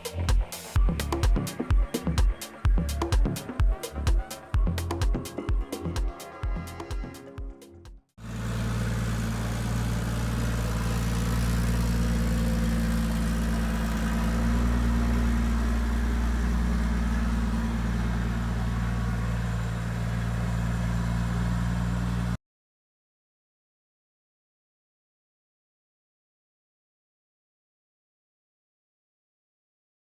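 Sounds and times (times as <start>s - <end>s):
car engine idling: 8.2s - 22.4s.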